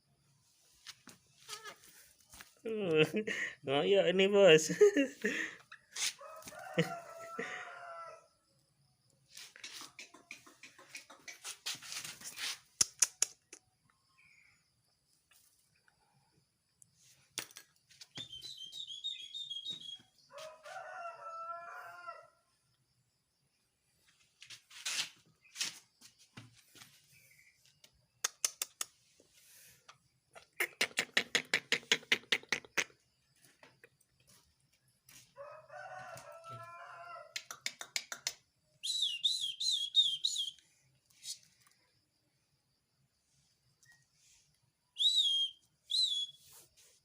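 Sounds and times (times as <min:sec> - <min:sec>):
bird whistled notes: 0:18.1 - 0:20.1, 0:38.8 - 0:40.6, 0:45.0 - 0:46.6
starling chirping and calling: 0:18.2 - 0:20.1.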